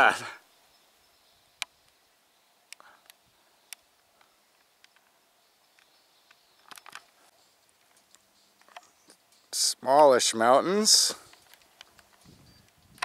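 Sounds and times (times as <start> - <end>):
faint clicks and ticks: 2.7 - 9.5, 11.2 - 13.0.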